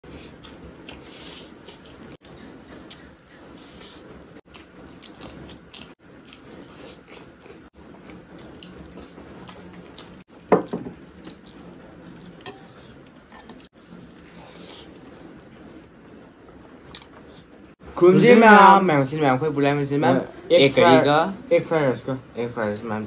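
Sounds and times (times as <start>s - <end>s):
wet chewing: 0.3s - 17.7s.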